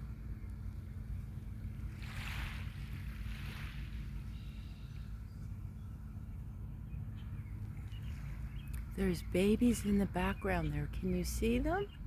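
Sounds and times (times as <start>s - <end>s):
wind rumble on microphone: 0.0s - 12.0s
small waves washing on beach: 0.9s - 5.2s.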